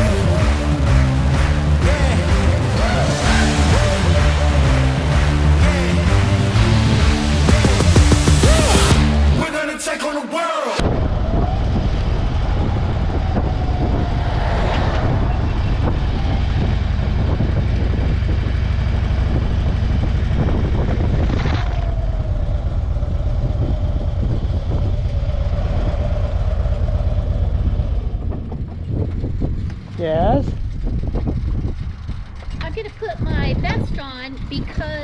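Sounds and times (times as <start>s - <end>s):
wind noise on microphone: 10.8s - 26.2s, 26.8s - 35.0s
motorcycle engine rumble: 10.8s - 35.0s.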